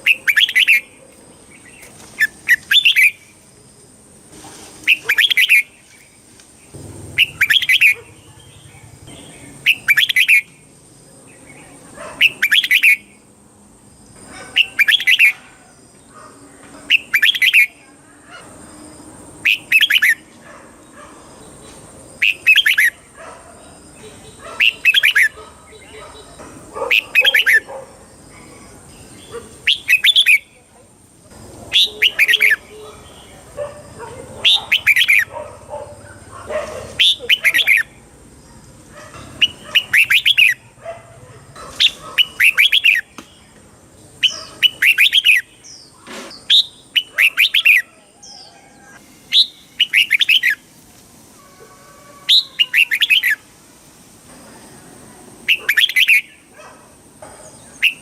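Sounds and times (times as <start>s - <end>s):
bulbul song: 0.0s - 3.4s, 4.8s - 10.7s, 11.3s - 13.3s, 14.6s - 15.4s, 22.2s - 23.0s, 23.9s - 27.7s, 28.9s - 30.7s, 31.7s - 33.5s, 34.4s - 35.3s, 39.4s - 40.7s, 49.0s - 50.7s, 52.2s - 53.6s, 55.4s - 56.5s, 57.8s - 58.0s.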